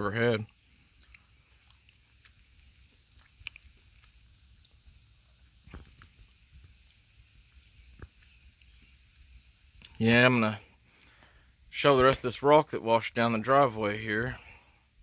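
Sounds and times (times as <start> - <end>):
crickets chirping: 0.1 - 15.0.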